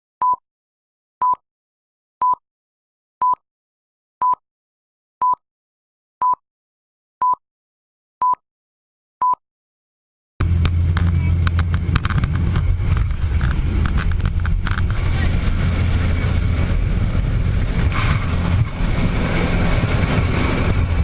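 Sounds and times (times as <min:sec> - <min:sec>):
short electronic beeps: 0:00.2 - 0:00.4, 0:01.2 - 0:01.4, 0:03.2 - 0:03.4, 0:05.2 - 0:05.4, 0:08.2 - 0:08.4.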